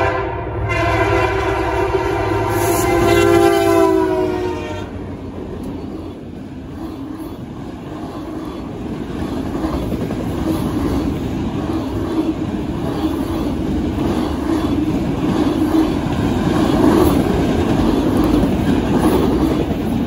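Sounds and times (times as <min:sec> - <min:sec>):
locomotive air horn: 0:00.0 - 0:05.1
train rumbling past on rails: 0:00.0 - 0:20.0.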